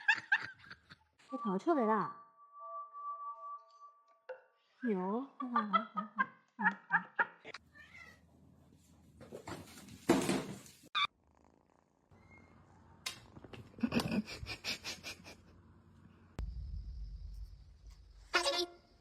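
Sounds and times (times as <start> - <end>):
low rumble: 16.3 - 19.0.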